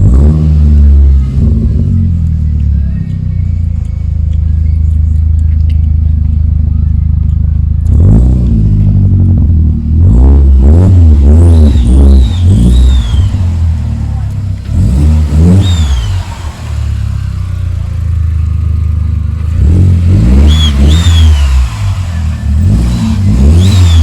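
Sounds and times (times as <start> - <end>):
car engine idling and revving: 0.0 - 24.0
faint high whistling glides: 11.7 - 13.5, 20.4 - 24.0.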